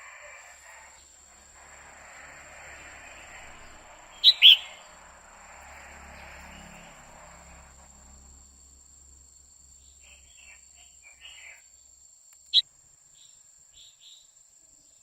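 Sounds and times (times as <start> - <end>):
bird call notes: 3.3 - 4.9.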